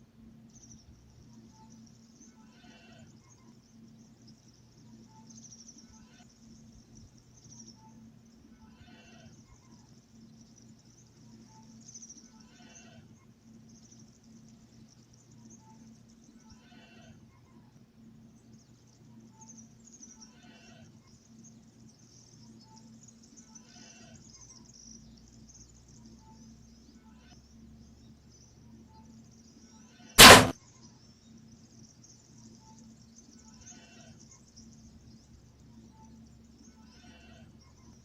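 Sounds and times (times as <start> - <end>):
rifle gunshot: 30.2 - 30.5.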